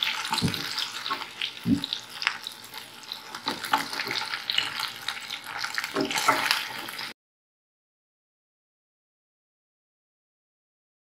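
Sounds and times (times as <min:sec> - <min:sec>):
oil sizzling and popping: 0:00.0 - 0:07.2.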